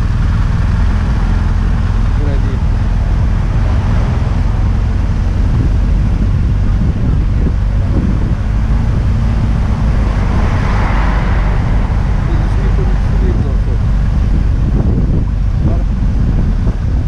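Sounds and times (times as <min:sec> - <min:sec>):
motorcycle engine drone: 0:00.0 - 0:17.0
wind rushing over microphone: 0:00.0 - 0:17.0.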